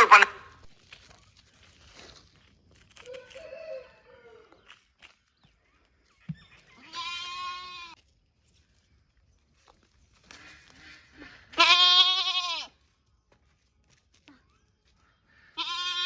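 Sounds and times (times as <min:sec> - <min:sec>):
young goat bleating: 0:00.0 - 0:00.4, 0:06.8 - 0:08.0, 0:11.5 - 0:12.7, 0:15.6 - 0:16.0.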